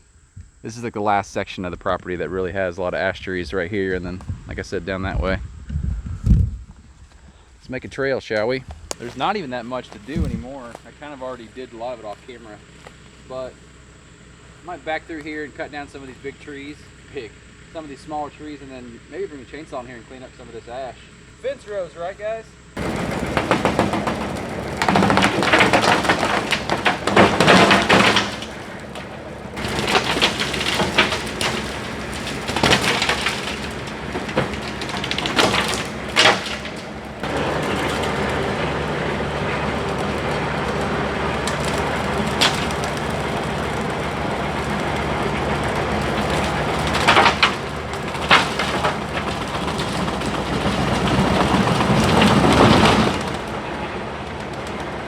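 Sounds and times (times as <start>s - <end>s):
tractor running: 8.4s - 55.0s
wood cracking and snapping: 8.9s - 11.0s, 22.8s - 55.0s
rotary cutter smashing brush: 22.8s - 53.7s.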